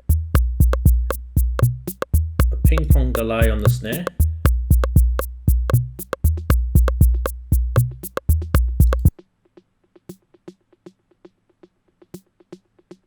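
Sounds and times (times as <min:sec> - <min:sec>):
drum machine beat: 0:00.0 - 0:09.2.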